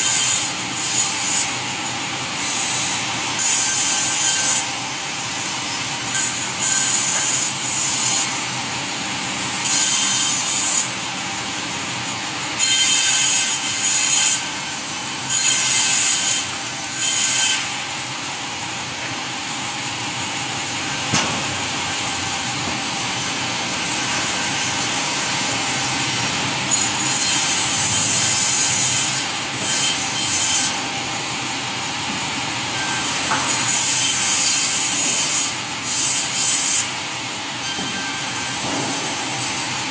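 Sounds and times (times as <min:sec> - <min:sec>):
saw cutting wood: 0:00.0 - 0:39.9
steady machinery noise: 0:00.0 - 0:39.9
sharp knock: 0:21.1 - 0:21.6.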